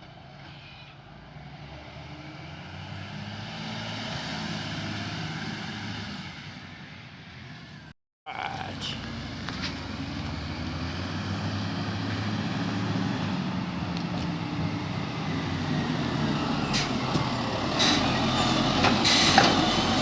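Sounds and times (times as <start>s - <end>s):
garbage truck diesel engine: 8.6s - 20.0s.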